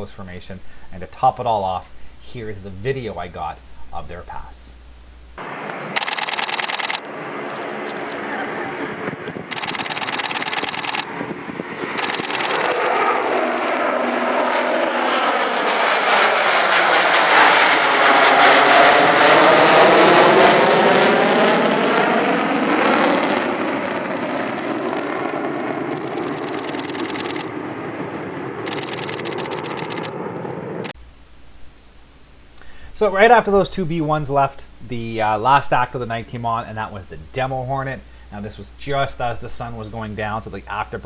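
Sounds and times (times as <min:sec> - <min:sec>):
jet engines roaring past: 0:05.4 - 0:31.0.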